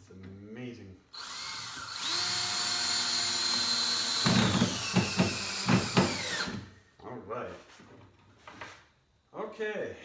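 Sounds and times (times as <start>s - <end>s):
power drill motor whine: 1.2s - 6.6s.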